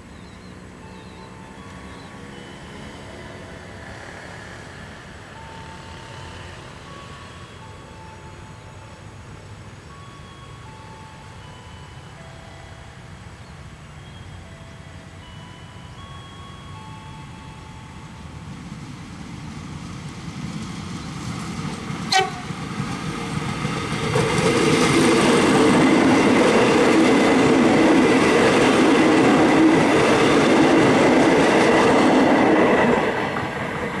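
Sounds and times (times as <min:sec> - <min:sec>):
electric train passing: 0:00.0 - 0:34.0
train horn toot: 0:22.1 - 0:22.6.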